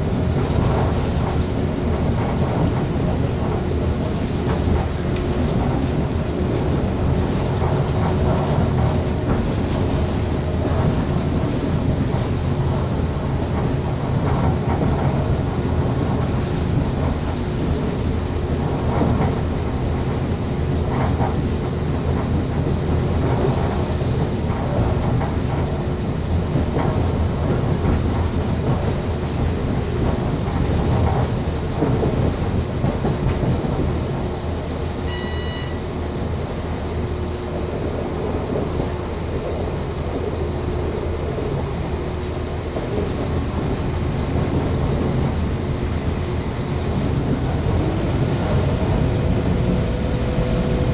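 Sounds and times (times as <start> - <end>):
train wheels rumbling on rails: 0.0 - 50.9
short high beep: 35.1 - 36.0.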